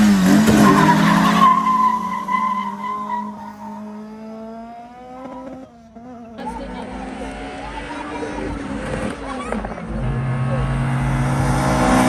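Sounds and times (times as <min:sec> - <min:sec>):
drag racing car engines accelerating: 0:00.0 - 0:12.0
tyres squealing: 0:00.5 - 0:04.0.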